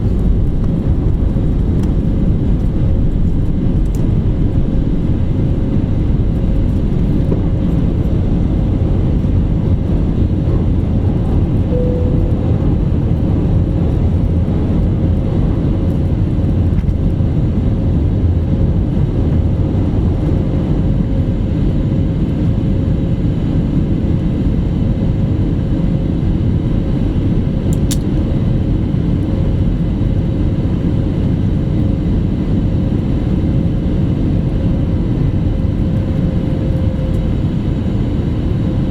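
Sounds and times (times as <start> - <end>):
jet engine rumble in cabin: 0.0 - 38.9
thin steady whine: 11.5 - 15.4.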